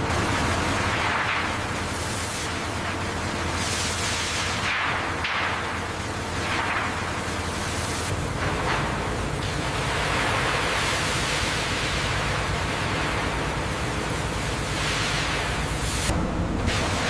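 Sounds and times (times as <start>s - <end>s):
industrial machinery hiss: 0.0s - 17.0s
machinery low rumble: 0.0s - 17.0s.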